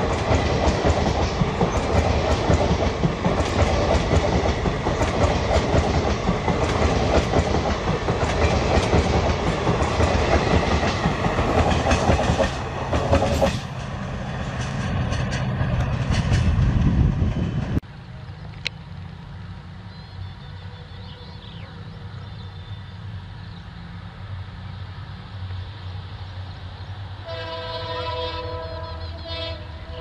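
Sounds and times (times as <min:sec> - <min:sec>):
train wheels clattering over joints: 0:00.0 - 0:17.8
distant diesel locomotive rumble: 0:00.0 - 0:30.0.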